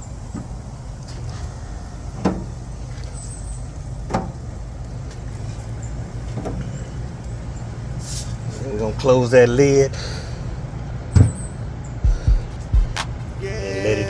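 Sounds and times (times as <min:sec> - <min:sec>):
steady low hum: 0:12.0 - 0:14.0.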